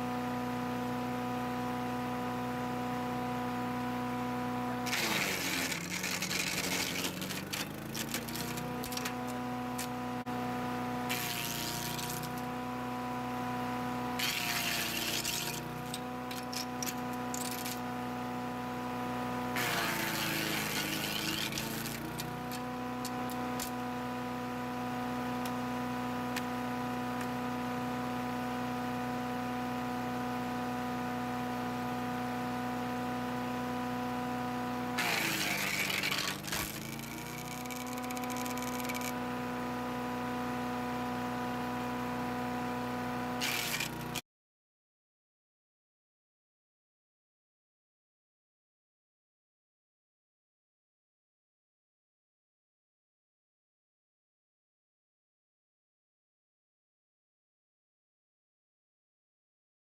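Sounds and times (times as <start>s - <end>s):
wood chipper engine running: 0.0s - 44.2s
branches crackling and snapping: 35.0s - 39.1s.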